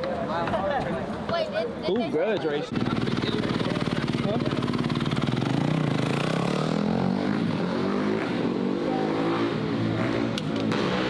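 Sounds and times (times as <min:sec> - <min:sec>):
mini bike engines revving: 0:02.6 - 0:11.0.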